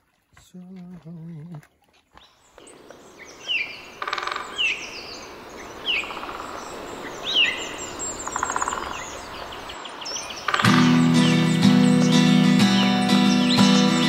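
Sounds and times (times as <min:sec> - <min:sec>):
high bird chirps: 0:02.6 - 0:14.0
bird rapid trill: 0:03.2 - 0:14.0.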